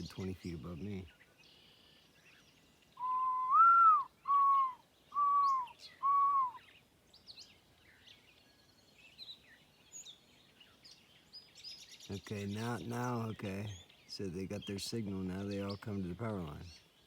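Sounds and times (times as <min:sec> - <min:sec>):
faint high bird chirps: 0:00.0 - 0:17.0
whistled notes: 0:03.0 - 0:06.6.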